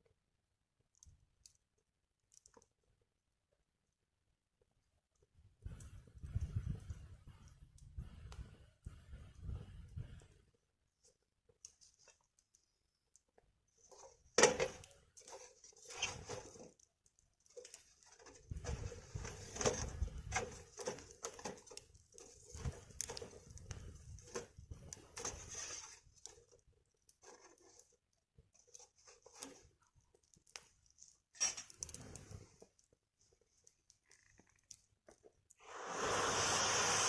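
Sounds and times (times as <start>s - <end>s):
wood fire crackling and popping: 11.6s - 36.8s.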